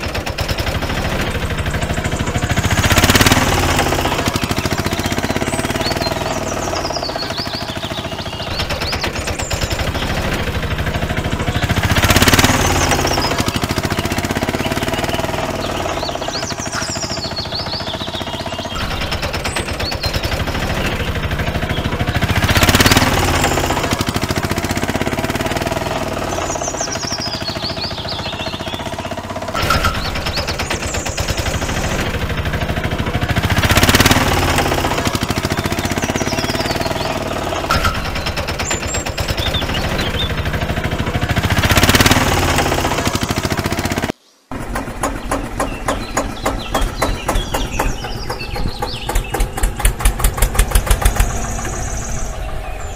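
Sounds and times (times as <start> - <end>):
engine chugging: 0.0 - 52.9.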